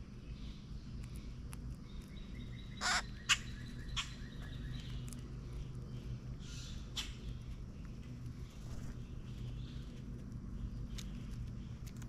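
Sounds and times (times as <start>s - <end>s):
faint low hum: 0.0s - 12.0s
wild birds calling: 0.0s - 12.0s
sharp bird chips: 0.4s - 5.7s.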